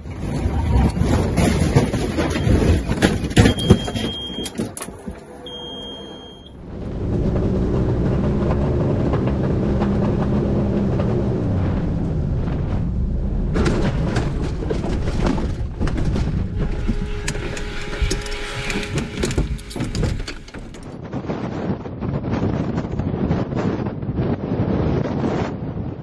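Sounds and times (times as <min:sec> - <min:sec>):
engine droning: 0:04.8 - 0:21.0.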